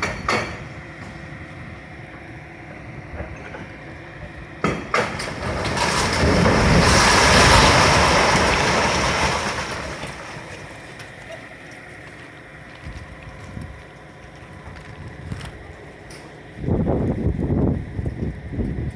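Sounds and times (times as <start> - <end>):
heavy clattering rumble: 3.1 - 11.2.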